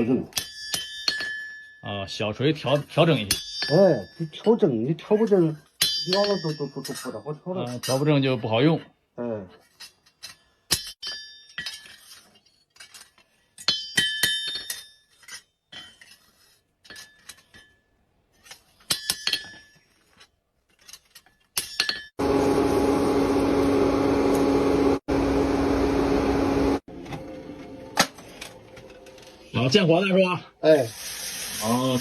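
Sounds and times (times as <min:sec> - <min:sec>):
machine humming: 0:22.2 - 0:29.4.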